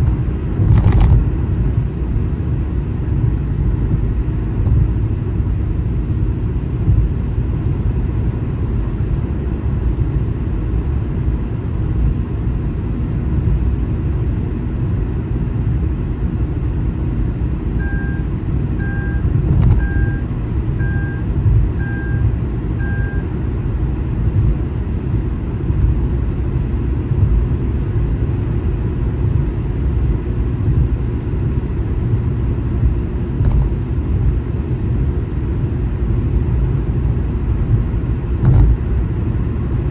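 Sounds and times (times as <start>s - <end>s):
car road rumble: 0.0s - 39.9s
short electronic beeps: 17.8s - 23.3s.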